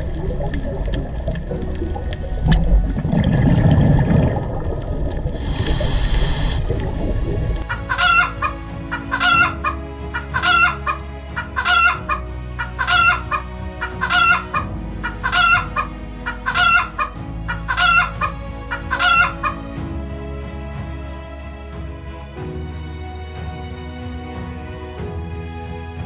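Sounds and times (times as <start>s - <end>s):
chickens squawking: 7.7s - 19.7s.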